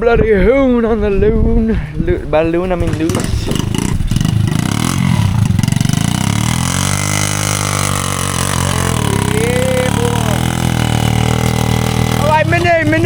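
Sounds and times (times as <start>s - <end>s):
pit bike engine revving: 2.8s - 13.0s.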